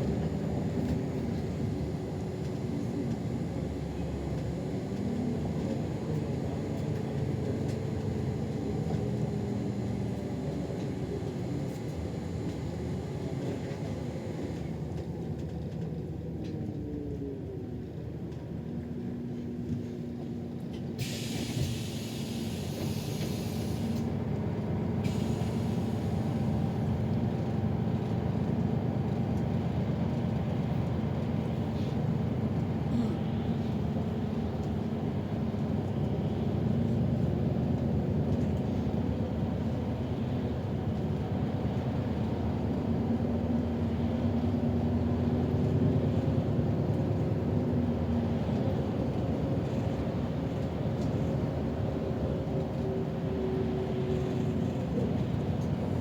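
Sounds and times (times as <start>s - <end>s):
bus engine drone: 0.0s - 56.0s
compressed air hiss: 21.0s - 24.1s.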